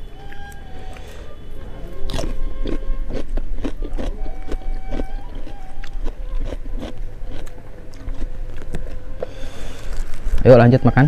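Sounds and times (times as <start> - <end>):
chewing and crunching food: 1.9 - 10.4.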